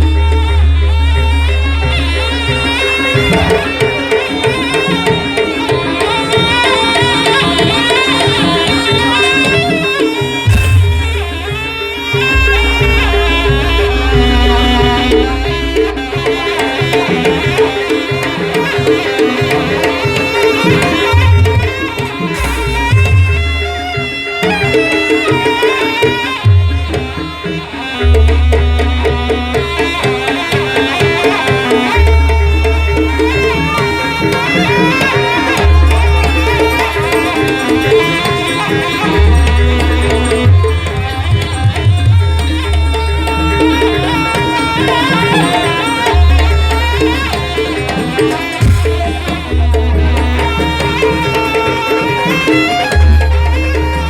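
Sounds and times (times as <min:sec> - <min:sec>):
deep low notes: 0:00.0 - 0:04.3, 0:10.5 - 0:17.0
percussion-led ensemble music: 0:00.0 - 0:54.0.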